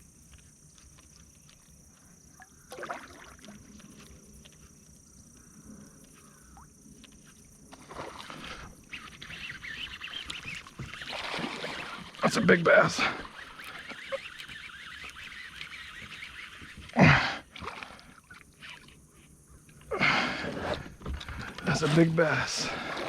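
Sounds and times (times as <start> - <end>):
water splashing: 2.3 - 3.9, 7.6 - 19.0, 20.0 - 23.0.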